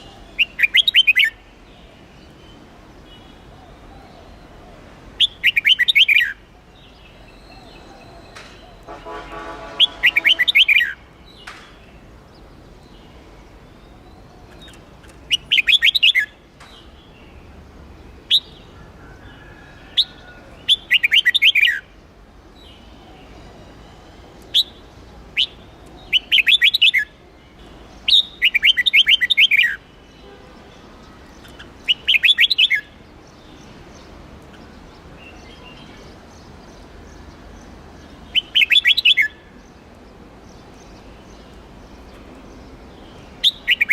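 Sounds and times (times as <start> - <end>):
bird singing fast phrases: 0.0 - 1.5, 5.2 - 18.7, 20.0 - 23.0, 24.1 - 27.2, 27.9 - 43.9
sharp bird chirps: 7.3 - 11.8, 13.9 - 16.9, 25.4 - 27.1, 31.4 - 33.0, 38.2 - 39.4.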